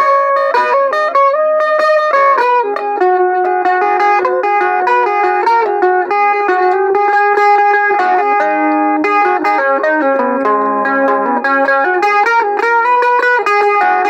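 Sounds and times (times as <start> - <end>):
electric mandolin picked melody: 0.0 - 14.0.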